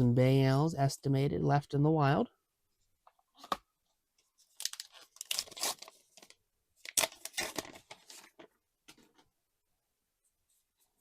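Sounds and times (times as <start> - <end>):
foil wrapper tearing and crinkling: 4.5 - 8.4.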